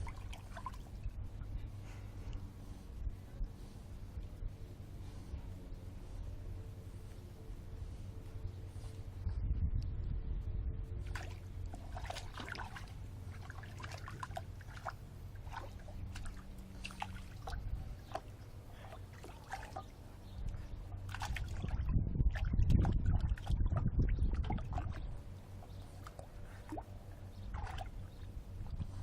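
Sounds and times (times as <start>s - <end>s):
water splashing in bird bath: 0.0s - 0.9s, 11.0s - 20.0s, 21.0s - 28.2s.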